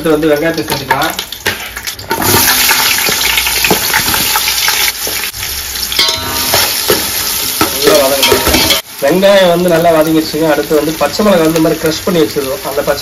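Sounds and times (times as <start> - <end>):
onions sizzling in oil: 0.1 - 13.0.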